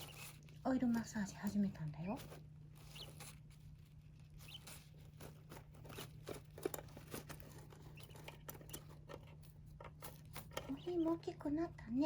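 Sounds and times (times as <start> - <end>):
small bird peeping: 0.0 - 0.5, 1.9 - 6.5, 7.6 - 9.1, 10.6 - 11.3
hands rustling and tapping: 0.0 - 11.4.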